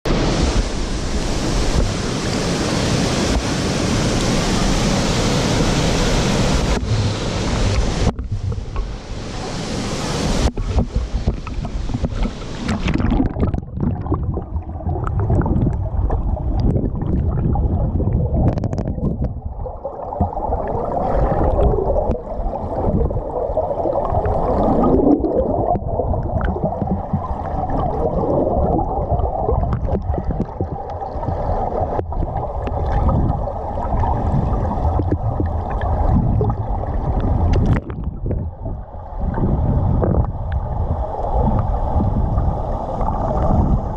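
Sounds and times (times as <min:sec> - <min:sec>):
low underwater rumble: 0:06.1 - 0:09.6, 0:10.2 - 0:43.9
hiss of falling water: 0:08.9 - 0:12.8
muffled underwater gurgling: 0:10.3 - 0:43.9.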